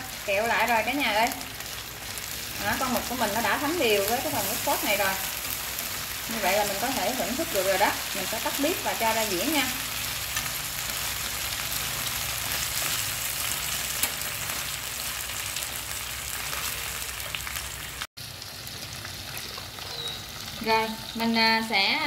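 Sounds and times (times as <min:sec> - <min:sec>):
squid sizzling in a frying pan: 0:00.0 - 0:22.0.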